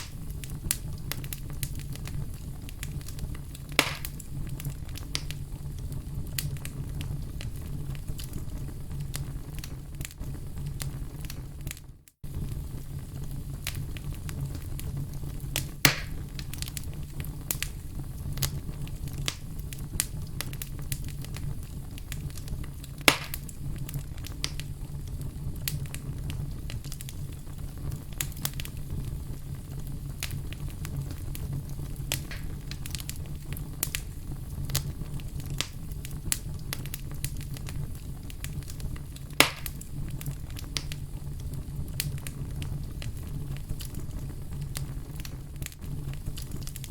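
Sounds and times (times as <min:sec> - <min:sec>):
fire snaps: 0:00.0 - 0:46.9
wood fire crackling: 0:00.0 - 0:46.9.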